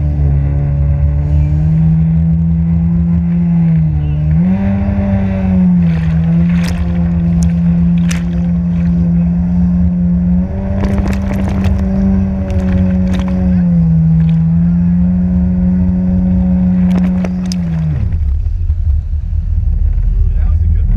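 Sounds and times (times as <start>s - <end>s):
jet ski engine droning: 0.0s - 20.9s
low rumble of wind and water: 0.0s - 20.9s.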